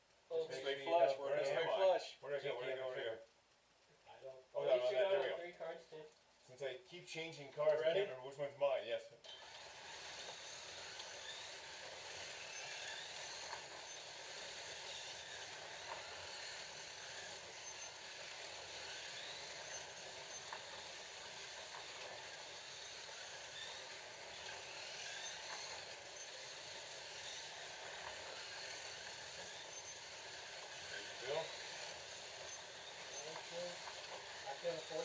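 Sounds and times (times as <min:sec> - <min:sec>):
slot car motors whining: 0:09.2 - 0:35.0
ticks of cars on track: 0:10.0 - 0:35.0.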